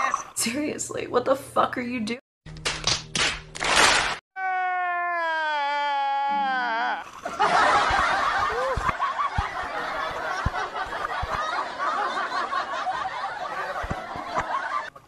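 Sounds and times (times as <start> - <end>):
people laughing: 7.0 - 15.0.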